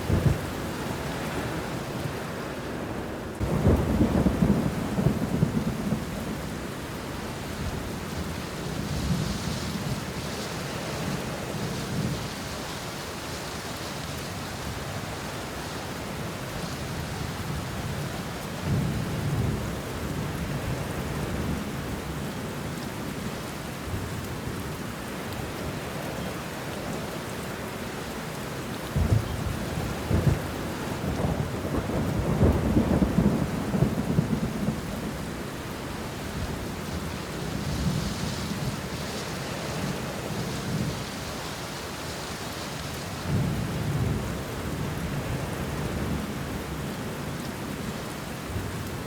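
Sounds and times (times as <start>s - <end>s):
rain on leaves: 0.0s - 49.0s
thunder rumbling: 3.4s - 6.4s, 29.0s - 35.3s.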